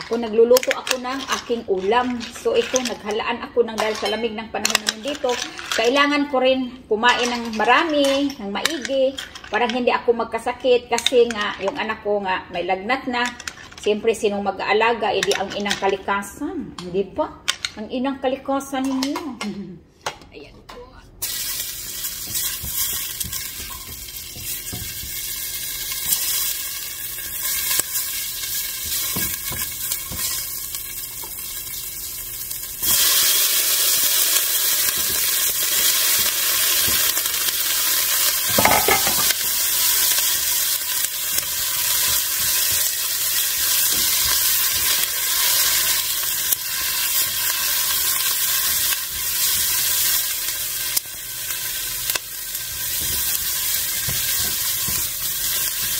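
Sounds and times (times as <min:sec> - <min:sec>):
food sizzling in hot oil: 0:21.2 - 0:55.9.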